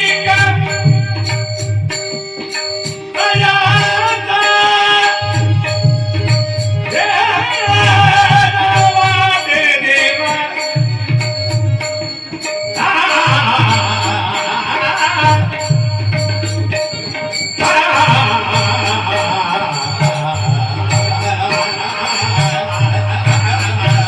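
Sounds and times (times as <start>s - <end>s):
tabla drumming: 0.0s - 24.0s
person singing: 17.5s - 24.0s.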